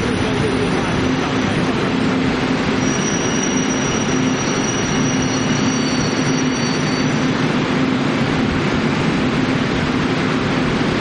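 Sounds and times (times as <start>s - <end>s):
train wheels rumbling on rails: 0.0s - 11.0s
high wheel squeal: 0.1s - 8.0s.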